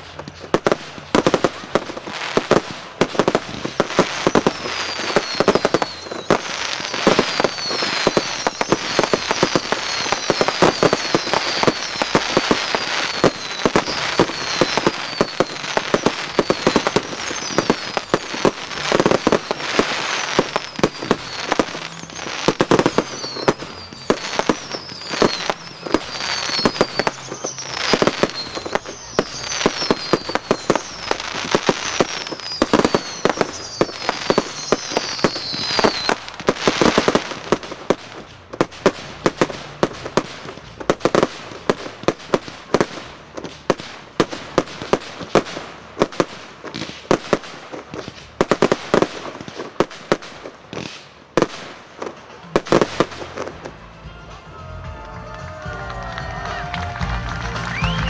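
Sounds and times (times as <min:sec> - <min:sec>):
fireworks whistles falling in pitch: 0:00.0 - 0:38.0, 0:55.4 - 0:58.0
fireworks bangs: 0:00.0 - 0:54.4, 0:55.0 - 0:58.0.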